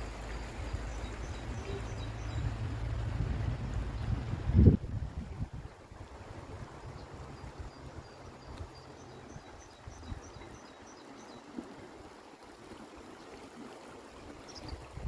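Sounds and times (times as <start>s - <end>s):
rushing outdoor background: 0.0s - 5.1s
small bird chirping: 0.9s - 2.6s
low rumble: 1.2s - 5.2s.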